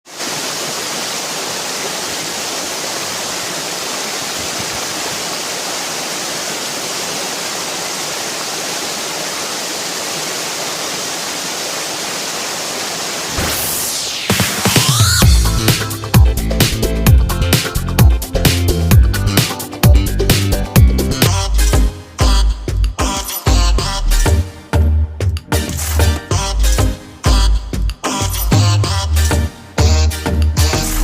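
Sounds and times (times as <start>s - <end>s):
rushing water: 0.0s - 17.8s
downward-sweeping whoosh: 13.4s - 15.8s
electronic dance music: 13.4s - 31.0s.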